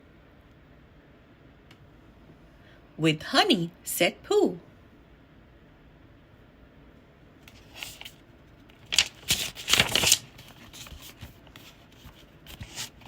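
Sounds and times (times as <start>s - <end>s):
paper page rustling: 7.4s - 13.0s.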